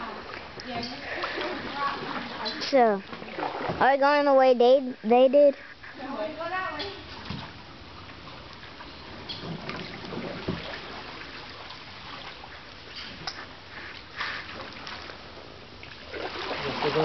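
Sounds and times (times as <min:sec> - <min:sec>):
water trickling drips: 0:00.0 - 0:03.7, 0:06.2 - 0:14.1
sharp water splashes: 0:00.0 - 0:04.0, 0:15.8 - 0:17.0
paddles dipping through water: 0:00.0 - 0:04.2, 0:05.7 - 0:17.0.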